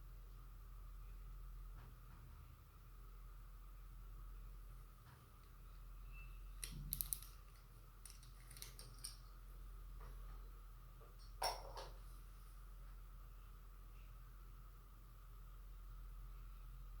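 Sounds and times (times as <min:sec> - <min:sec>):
small hard parts clicking: 0:06.6 - 0:09.3.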